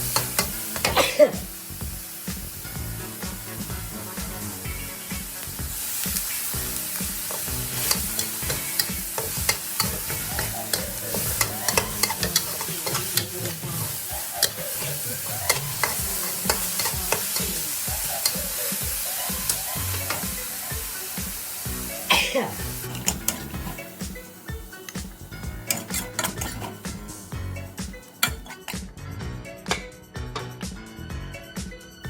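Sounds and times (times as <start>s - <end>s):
stir-fry sizzling in a hot pan: 0.0s - 28.8s
spatula scraping metal pan: 7.0s - 18.4s, 22.8s - 23.9s, 25.6s - 27.1s, 28.2s - 28.8s.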